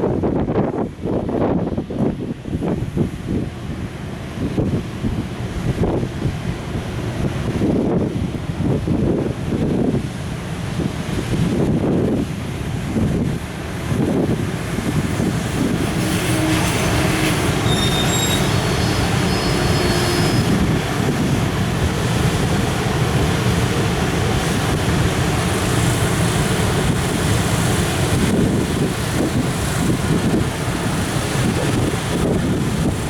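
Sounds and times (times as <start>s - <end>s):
train wagons rolling past: 13.4s - 33.0s
thin wheel squeals: 17.6s - 20.6s.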